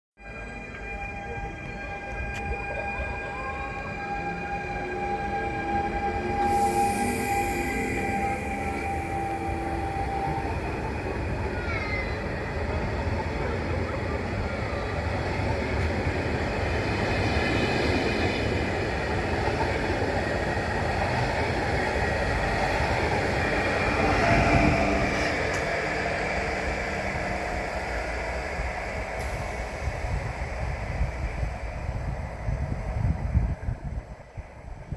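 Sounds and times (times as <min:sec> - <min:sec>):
train wheels rumbling on rails: 0:00.7 - 0:34.9
thin wheel squeal: 0:06.3 - 0:09.1.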